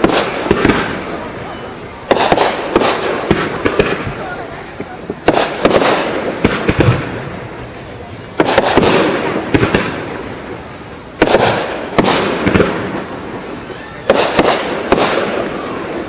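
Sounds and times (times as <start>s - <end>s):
fireworks bursting with echo: 0.0s - 16.0s.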